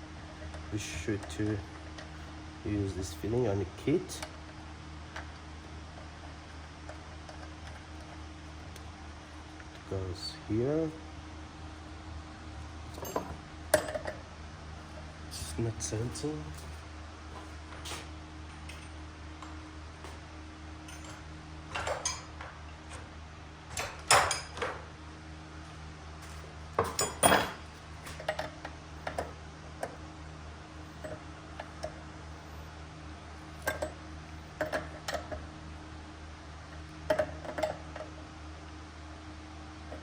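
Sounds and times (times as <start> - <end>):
steady low hum: 0.0 - 40.0
metal parts clinking: 12.9 - 14.1, 20.9 - 22.5, 26.8 - 29.3.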